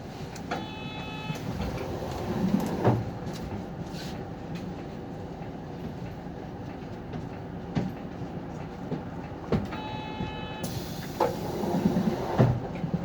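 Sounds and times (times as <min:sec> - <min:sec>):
bus engine idling: 0:01.4 - 0:13.0
hiss of compressed air: 0:10.6 - 0:12.4.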